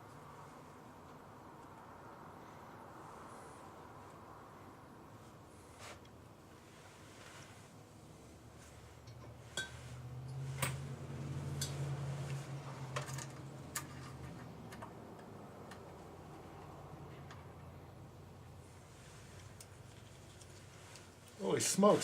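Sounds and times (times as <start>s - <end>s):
metallic clicks of small parts: 12.9s - 15.9s.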